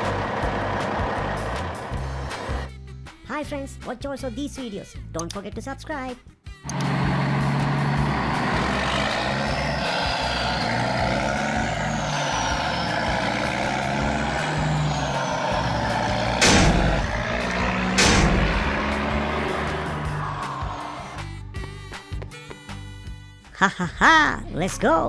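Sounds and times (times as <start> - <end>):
truck engine running: 0.0 - 2.7, 6.7 - 23.2.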